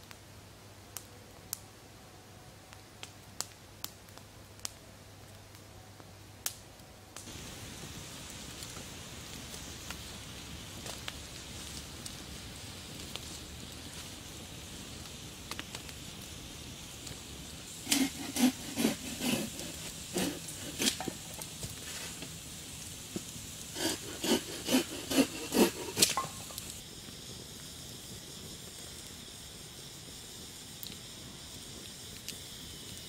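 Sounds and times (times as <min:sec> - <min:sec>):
faint steady hiss: 0:00.0 - 0:33.0
hand saw cutting wood: 0:17.7 - 0:21.3, 0:23.7 - 0:26.4.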